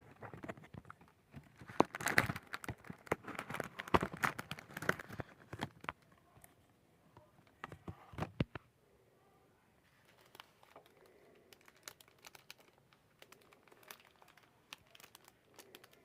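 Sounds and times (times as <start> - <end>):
plastic and paper crinkling: 0.0 - 6.6, 9.8 - 16.0.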